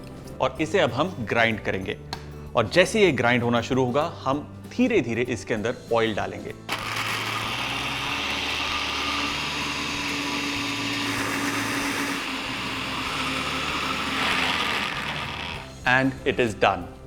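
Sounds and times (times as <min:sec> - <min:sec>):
mixer grinder running: 0:06.7 - 0:15.8.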